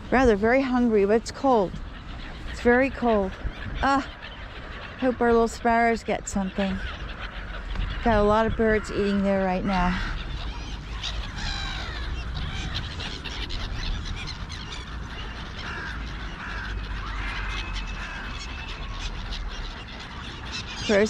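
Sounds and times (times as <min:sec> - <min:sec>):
birds calling: 0:00.0 - 0:21.0
steady low rumble: 0:00.0 - 0:21.0
crows cawing: 0:06.6 - 0:21.0.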